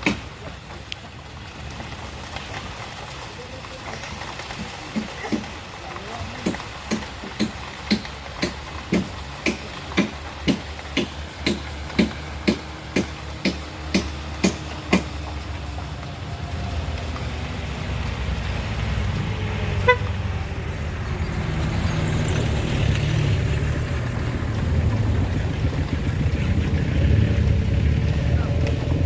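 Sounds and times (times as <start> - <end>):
rumble of traffic engines: 0.0 - 29.0
vehicle horn tooting: 19.8 - 20.2.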